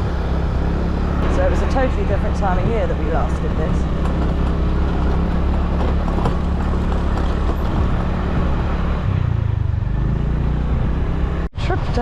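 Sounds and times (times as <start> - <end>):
wind noise over microphone: 0.0 - 9.6
motor scooter engine running: 0.0 - 11.8.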